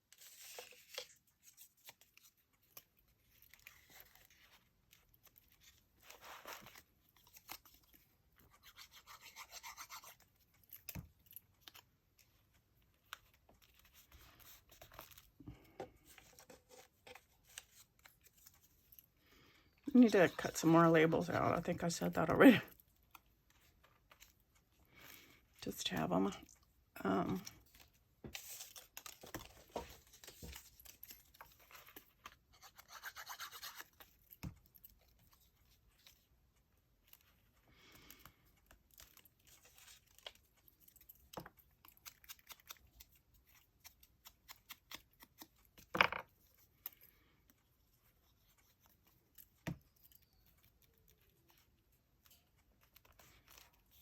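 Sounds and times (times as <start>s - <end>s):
scissors snipping paper: 27.2s - 36.2s, 38.2s - 47.6s
paper rustling: 27.2s - 36.3s.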